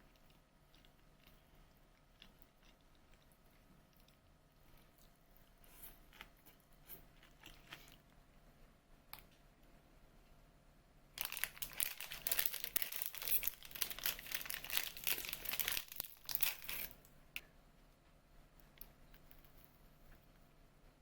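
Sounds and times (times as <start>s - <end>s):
plastic packaging crinkling: 11.2s - 17.0s.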